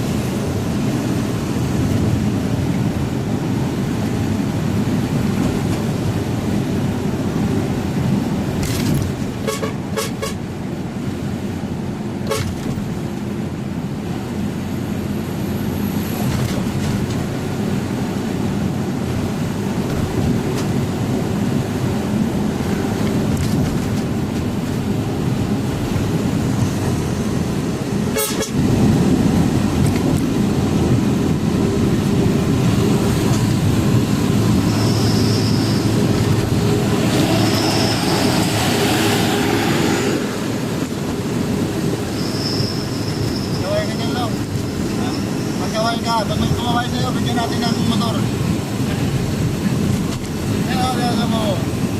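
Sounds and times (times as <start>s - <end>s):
road noise: 0.0s - 51.9s
truck engine running: 24.0s - 42.0s.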